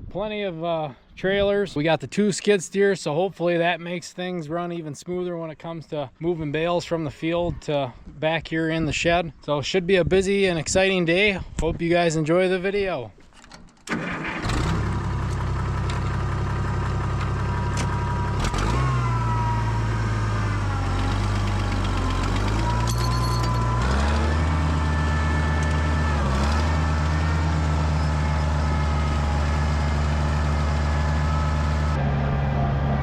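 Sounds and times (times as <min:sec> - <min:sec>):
tractor engine running: 0:13.8 - 0:33.0.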